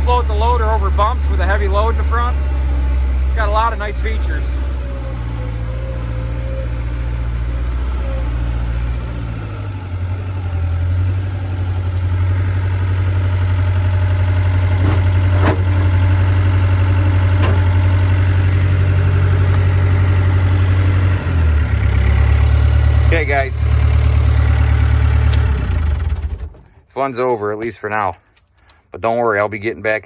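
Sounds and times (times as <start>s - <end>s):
skid steer engine running: 0.0s - 26.8s.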